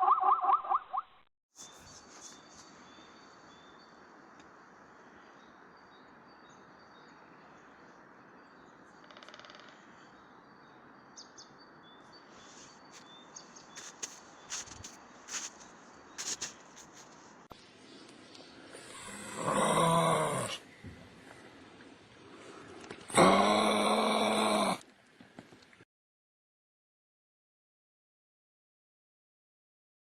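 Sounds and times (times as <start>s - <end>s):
bird trill: 0.0s - 3.9s
small birds chirping: 1.6s - 21.7s
steady outdoor hiss: 1.6s - 25.8s.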